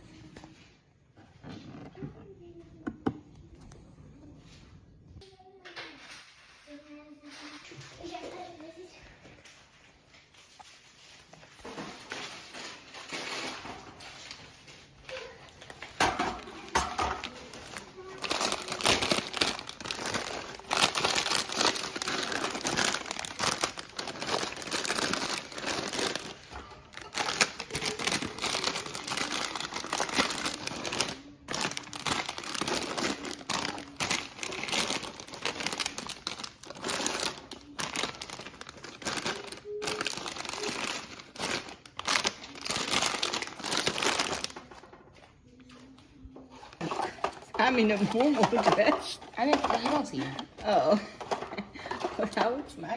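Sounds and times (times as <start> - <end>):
plastic bags crinkling: 10.6 - 45.0, 46.6 - 52.9.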